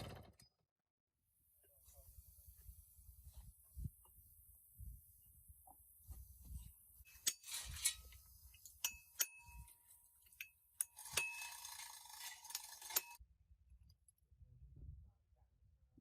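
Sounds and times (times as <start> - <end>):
metal scraping: 7.1 - 13.2
metal tools clinking: 7.1 - 13.2.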